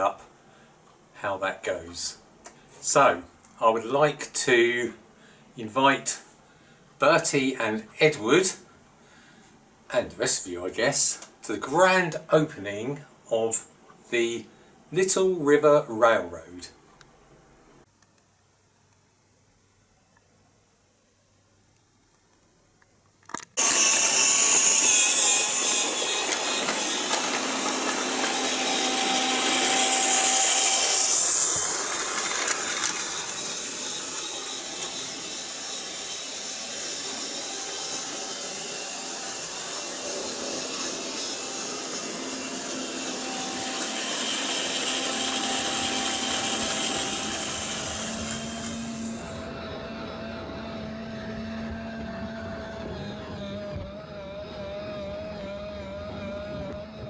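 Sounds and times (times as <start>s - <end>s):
click: 18.0s - 18.3s
model train motor whir: 23.6s - 49.6s.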